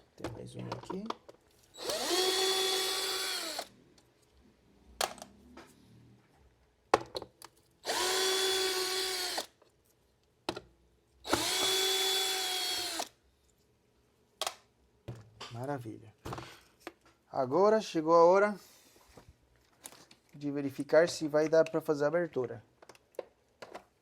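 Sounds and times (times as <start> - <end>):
electric screwdriver whining: 1.8 - 3.7, 7.8 - 9.5, 11.3 - 13.1.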